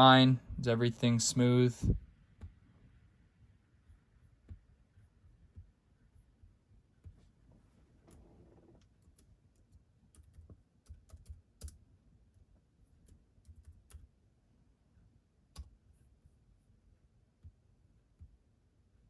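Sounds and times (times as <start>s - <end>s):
typing on computer keyboard: 8.8s - 11.8s, 13.0s - 14.2s.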